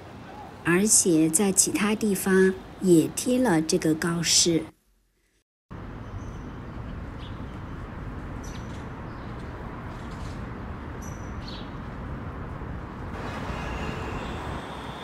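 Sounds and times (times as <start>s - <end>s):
distant traffic hum: 0.0s - 4.7s, 5.7s - 15.0s.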